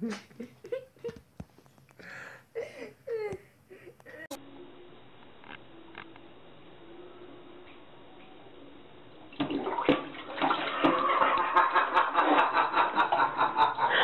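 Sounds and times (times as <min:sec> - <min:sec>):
toilet flushing: 0:08.6 - 0:14.0.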